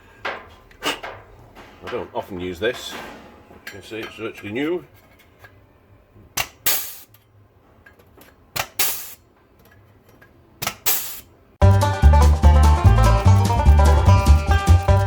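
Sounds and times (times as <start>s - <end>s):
short hissing burst: 6.7s - 7.1s, 8.8s - 9.2s, 10.8s - 11.3s
banjo music: 11.6s - 15.0s.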